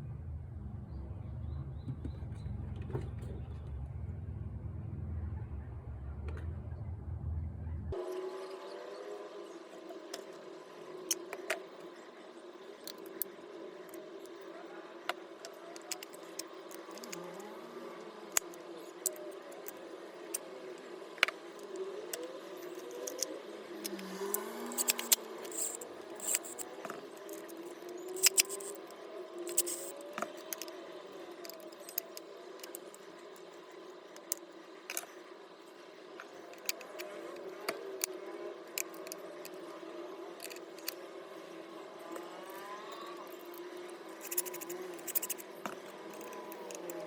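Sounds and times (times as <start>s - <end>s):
steady low hum: 0.0s - 8.0s
metal parts and tools clinking: 22.1s - 28.8s, 29.5s - 30.7s, 44.2s - 47.0s.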